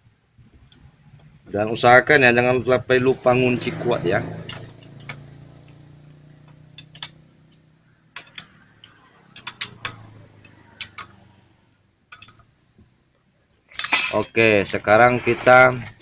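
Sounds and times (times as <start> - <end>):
hand tools clicking on metal: 4.4 - 5.8, 6.5 - 7.2, 8.2 - 11.2, 12.1 - 12.4.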